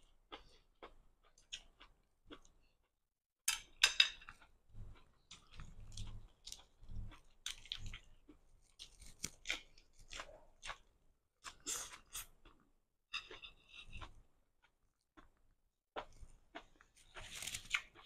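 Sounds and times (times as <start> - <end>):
crunching and chewing lettuce: 4.8 - 12.6, 16.0 - 18.0.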